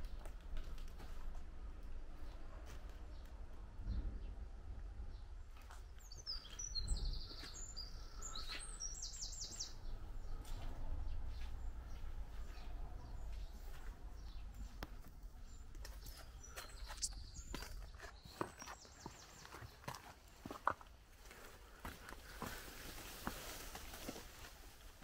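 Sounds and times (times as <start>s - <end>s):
small birds chirping: 5.1s - 25.0s.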